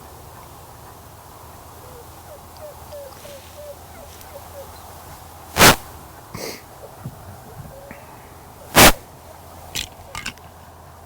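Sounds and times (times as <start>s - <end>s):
scratchy microphone noise: 5.5s - 5.9s, 8.7s - 9.0s.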